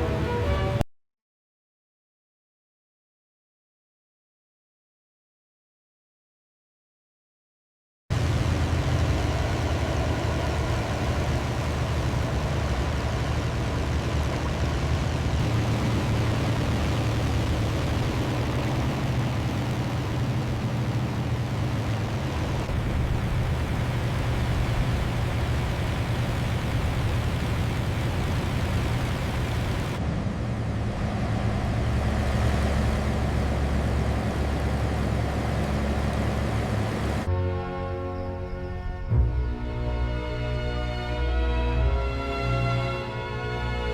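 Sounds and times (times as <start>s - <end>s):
propeller aircraft engines humming: 0.0s - 0.8s, 8.1s - 43.9s
wind noise hiss: 8.2s - 30.0s.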